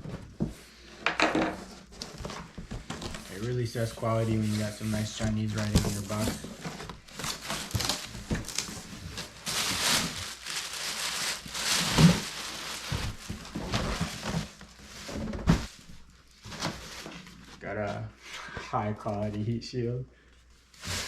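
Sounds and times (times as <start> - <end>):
packing material crinkling: 2.0 - 17.5.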